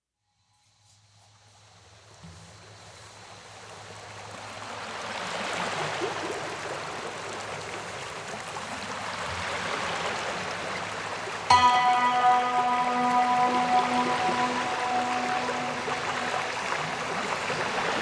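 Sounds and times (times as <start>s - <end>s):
running water: 11.5s - 18.0s.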